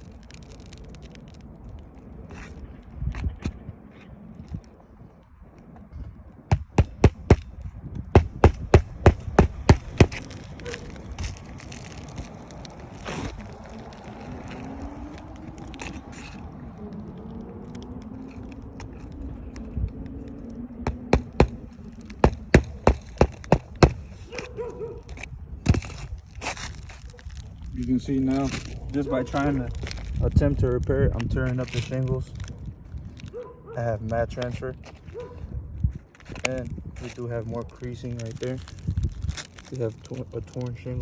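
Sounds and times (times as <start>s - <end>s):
hammer striking shingle roof: 6.5s - 7.5s, 8.1s - 10.3s, 20.9s - 21.6s, 22.2s - 24.1s.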